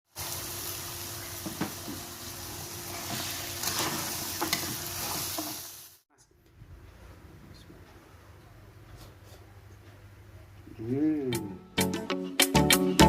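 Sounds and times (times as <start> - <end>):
food sizzling in hot oil: 0.1 - 6.0.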